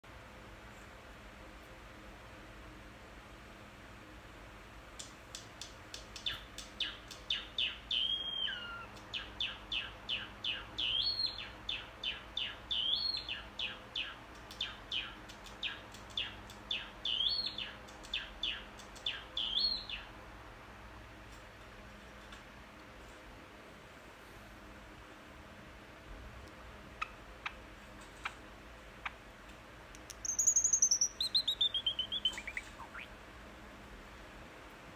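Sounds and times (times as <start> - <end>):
bird chirping: 5.9 - 20.2, 27.0 - 28.4, 30.0 - 33.2
bending whistled bird note: 6.3 - 8.9, 30.2 - 33.1.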